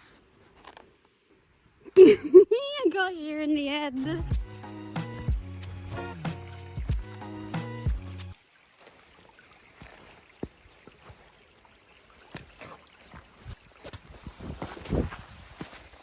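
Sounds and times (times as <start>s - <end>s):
footsteps outdoors: 4.0s - 16.0s
music: 4.1s - 8.4s.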